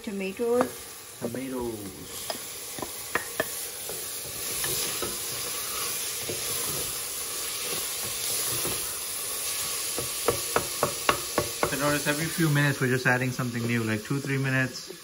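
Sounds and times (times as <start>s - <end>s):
tomatoes sizzling in hot oil: 0.0s - 15.0s
spoon knocking against pot: 2.3s - 3.6s, 10.0s - 11.8s.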